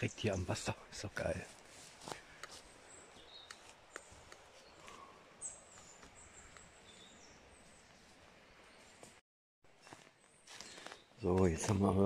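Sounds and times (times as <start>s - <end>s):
faint high bird calls: 2.1s - 9.0s
soft clicks: 3.4s - 4.5s.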